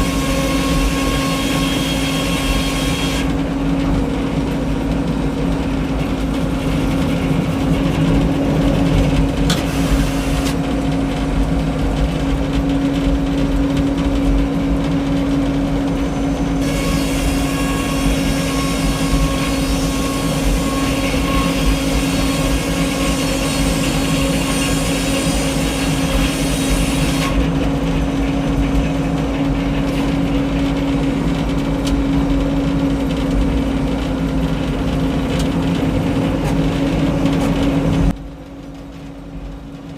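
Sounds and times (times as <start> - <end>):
circular saw cutting log: 0.0 - 3.4, 6.0 - 10.7, 16.4 - 30.3
sawmill engine droning: 0.0 - 39.9.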